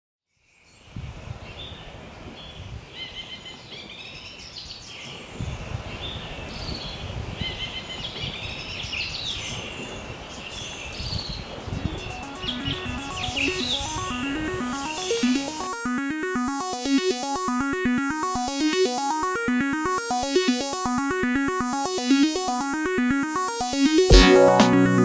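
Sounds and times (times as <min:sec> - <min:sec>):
electronic music: 0:11.8 - 0:25.0.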